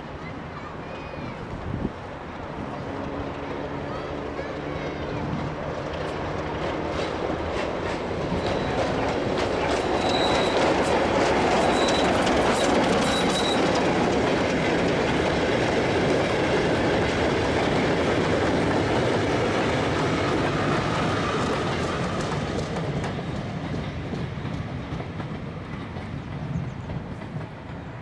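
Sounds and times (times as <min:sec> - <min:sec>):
train wheels rumbling on rails: 0:00.0 - 0:28.0
high squeal: 0:08.3 - 0:10.9, 0:11.5 - 0:13.7.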